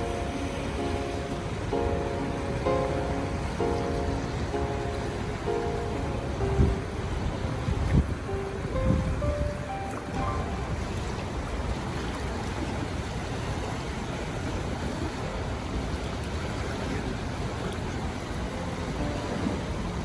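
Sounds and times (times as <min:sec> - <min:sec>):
wind blowing on microphone: 0:00.0 - 0:12.7
lake waves breaking: 0:00.0 - 0:20.0.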